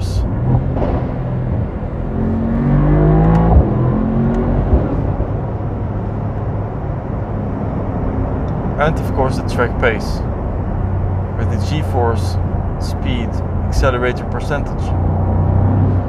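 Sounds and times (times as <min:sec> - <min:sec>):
car engine accelerating: 0:00.0 - 0:16.0
road rumble: 0:00.0 - 0:16.0
sharp thump: 0:00.5 - 0:01.8, 0:03.3 - 0:03.8, 0:04.6 - 0:05.4.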